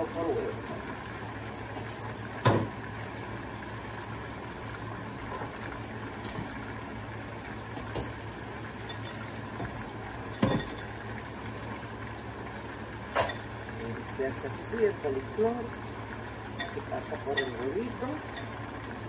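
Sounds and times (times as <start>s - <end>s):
chicken frying in oil: 0.0s - 19.0s
dishes clinking: 10.4s - 10.9s, 16.5s - 17.6s.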